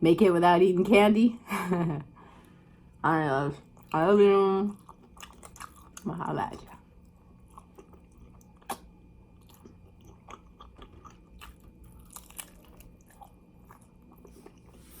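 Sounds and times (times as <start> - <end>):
person chewing chicken wings: 4.8 - 6.1, 6.7 - 15.0.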